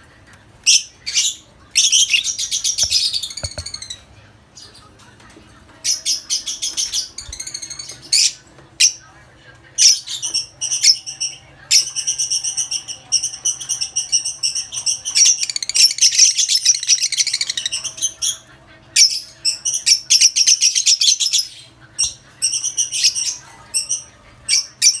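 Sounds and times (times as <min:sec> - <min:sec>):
lovebirds chattering: 0:00.3 - 0:25.0.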